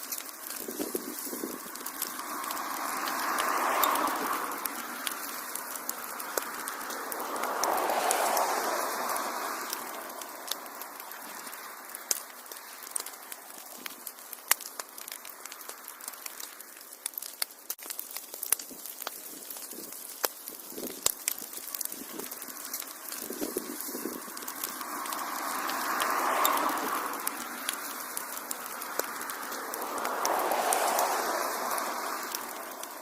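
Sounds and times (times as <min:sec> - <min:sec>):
wood fire crackling and popping: 0:00.0 - 0:33.0
rushing hiss: 0:28.9 - 0:33.0.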